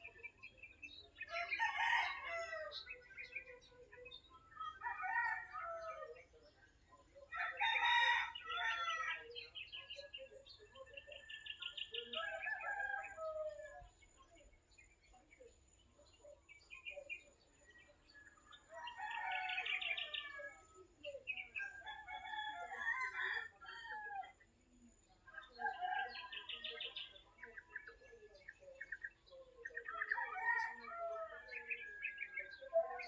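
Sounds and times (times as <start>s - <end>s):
small birds chirping: 0.0s - 33.0s
rooster crowing: 7.4s - 9.2s, 21.9s - 24.3s.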